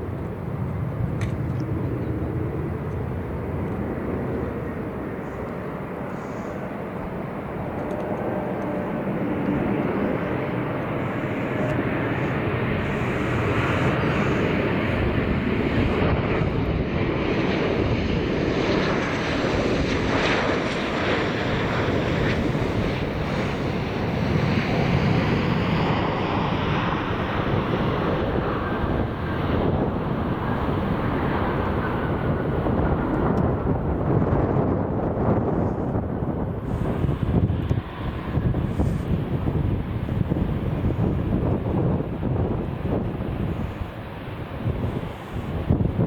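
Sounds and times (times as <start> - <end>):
high engine whine: 0.0 - 18.2
airliner engines roaring: 0.0 - 46.0.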